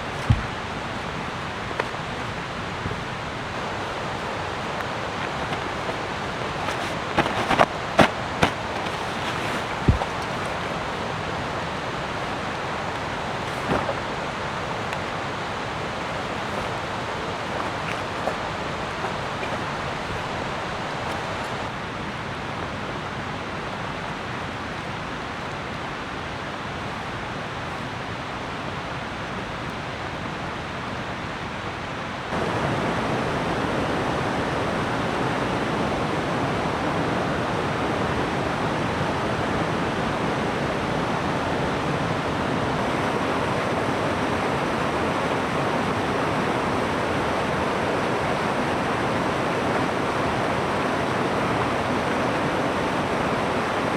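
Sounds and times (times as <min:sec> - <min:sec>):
steady rain hiss: 0:00.0 - 0:31.3, 0:31.9 - 0:53.9.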